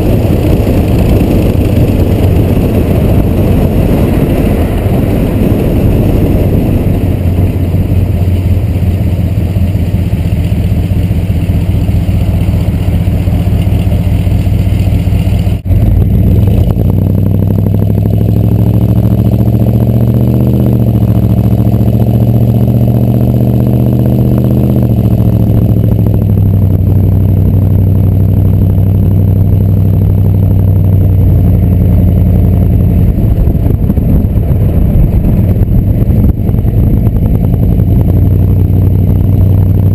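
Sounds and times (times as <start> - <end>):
loud diesel engine revving: 15.6 - 29.9.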